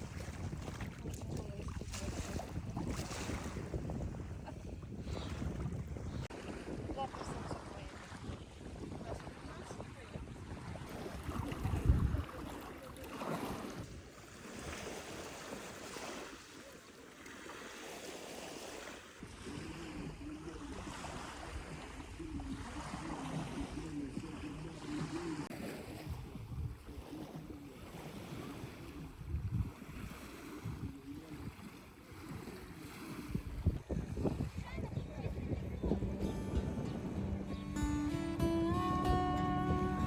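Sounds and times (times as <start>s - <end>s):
wind buffeting microphone: 0.0s - 12.8s, 26.0s - 27.6s, 28.2s - 40.0s.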